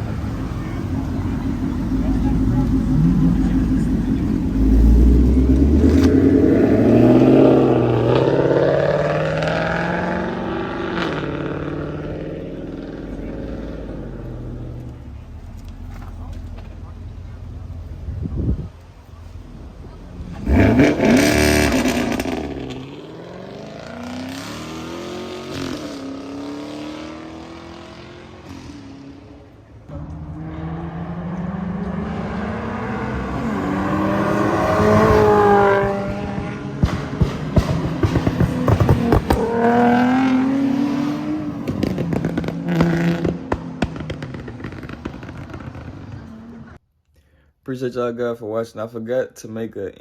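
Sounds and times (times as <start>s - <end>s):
car engine revving: 0.0s - 46.8s
sharp exhaust pops: 34.9s - 40.4s, 41.6s - 46.6s.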